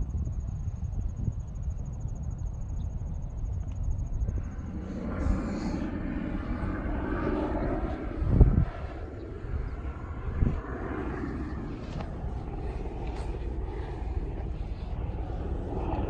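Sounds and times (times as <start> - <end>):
distant engine drone: 0.0 - 16.0.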